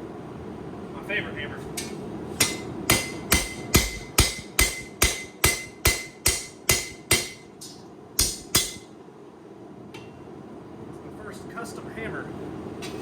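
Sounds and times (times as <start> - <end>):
hammer striking anvil: 1.8 - 8.9.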